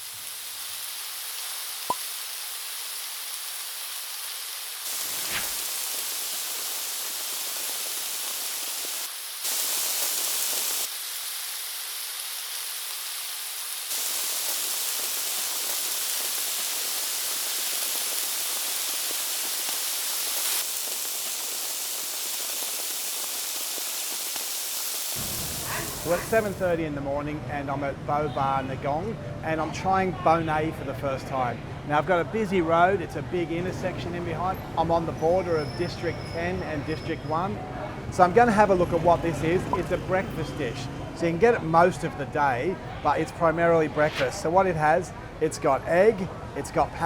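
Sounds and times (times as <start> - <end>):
steady high hissing noise: 0.0 - 26.8.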